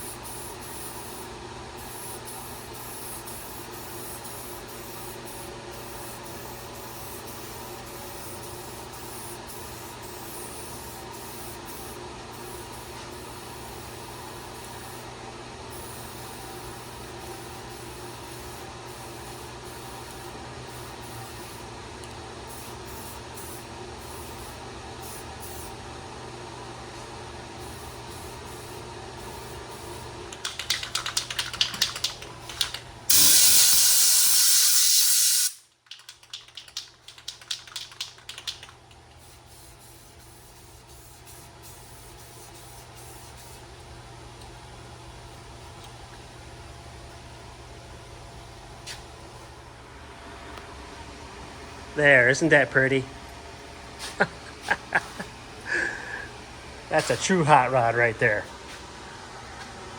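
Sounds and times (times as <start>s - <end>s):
spray paint hissing: 0.0s - 1.2s, 1.8s - 15.0s, 15.7s - 21.7s, 22.5s - 25.7s, 27.6s - 35.6s, 36.2s - 43.6s.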